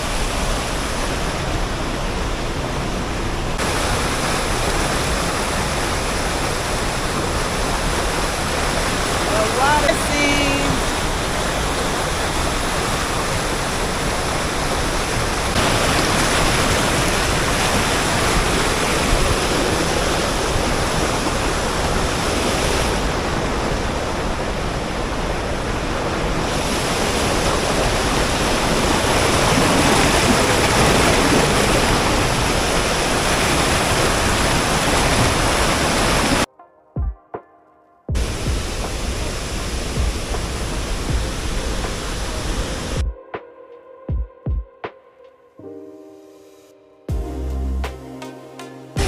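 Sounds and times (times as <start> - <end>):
waterfall rushing: 0.0 - 36.5, 38.2 - 43.0.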